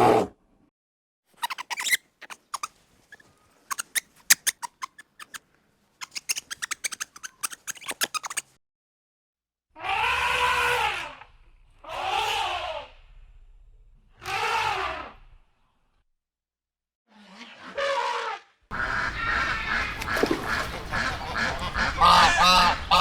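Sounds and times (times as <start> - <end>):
animal calls rising and falling: 1.4 - 5.4, 6.0 - 8.4, 18.7 - 23.0.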